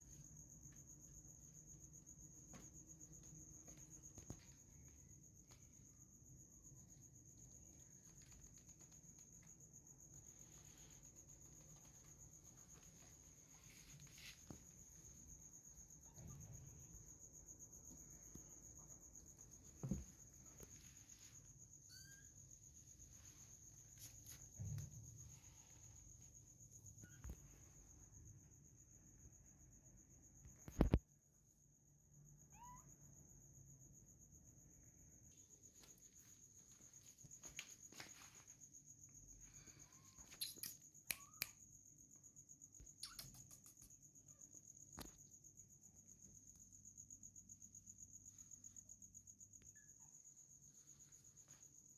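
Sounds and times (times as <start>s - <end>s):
high-pitched insect-like trill: 18.2s - 27.4s, 32.2s - 51.9s
soft thump: 19.8s - 20.2s.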